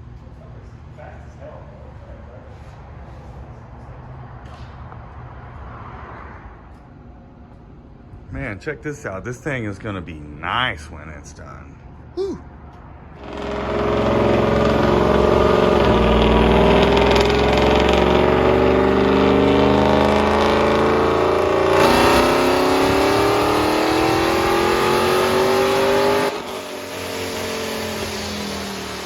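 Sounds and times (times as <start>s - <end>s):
car engine accelerating hard: 13.2s - 29.0s.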